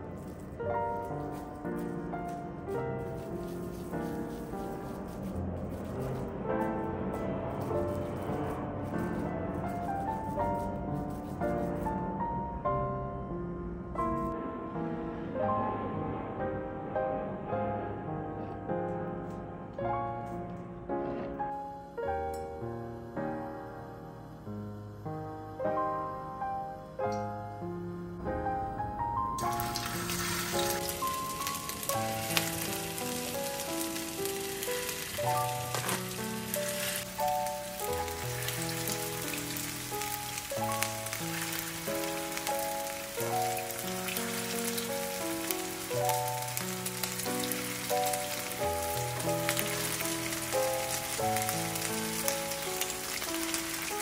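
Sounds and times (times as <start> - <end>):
food sizzling in hot oil: 0.0 - 6.8, 7.5 - 12.0, 29.4 - 54.0
slow piano music: 0.0 - 54.0.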